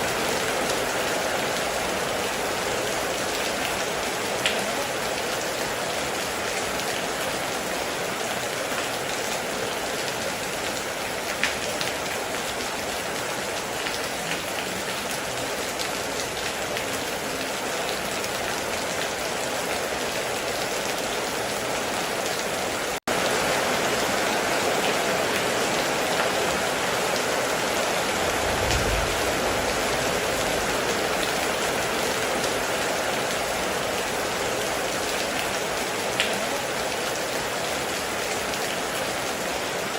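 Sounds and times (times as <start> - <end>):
heavy rain falling: 0.0 - 39.9
brief low rumble: 28.3 - 30.4.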